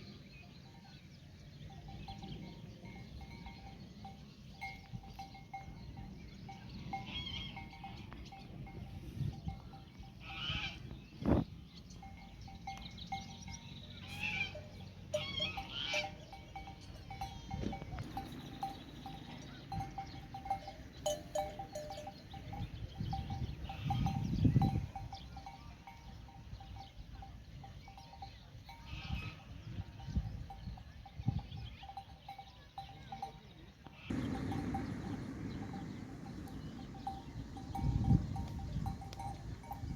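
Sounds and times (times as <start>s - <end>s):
animal bells tinkling: 0.0s - 39.9s
deep low swell: 34.1s - 39.2s.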